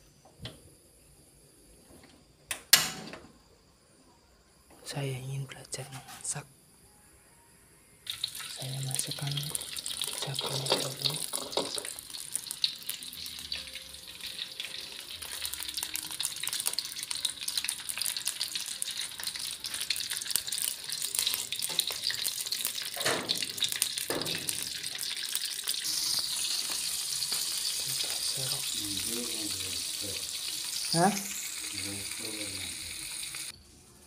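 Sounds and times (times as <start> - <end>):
chilies sizzling in hot oil: 8.0 - 33.6.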